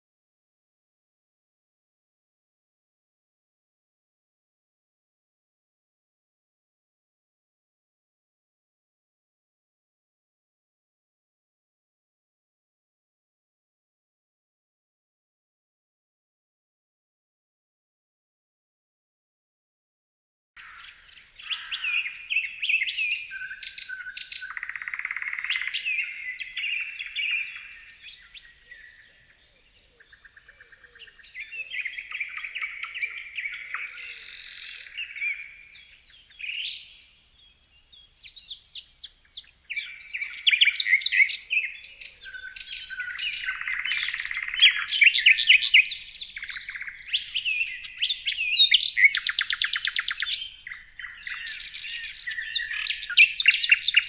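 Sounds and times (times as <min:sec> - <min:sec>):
songbirds chirping and singing: 0:20.6 - 0:54.0
fast bird trill: 0:40.2 - 0:54.0.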